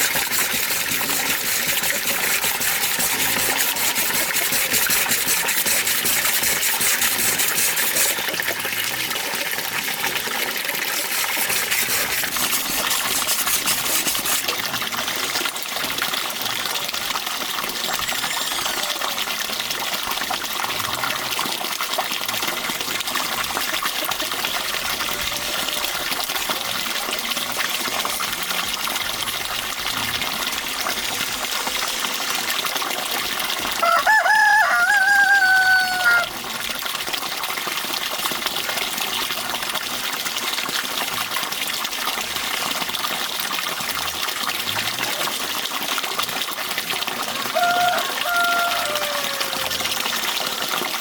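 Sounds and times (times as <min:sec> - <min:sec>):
running water: 0:00.0 - 0:51.0
rooster crowing: 0:33.8 - 0:36.3, 0:47.3 - 0:50.1.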